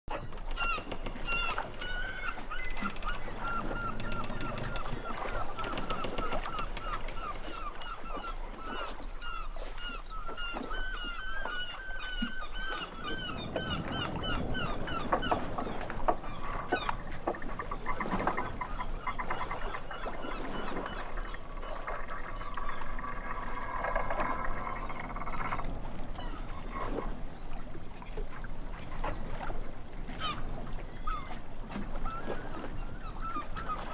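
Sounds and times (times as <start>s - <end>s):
flock of birds calling: 0.1s - 25.6s.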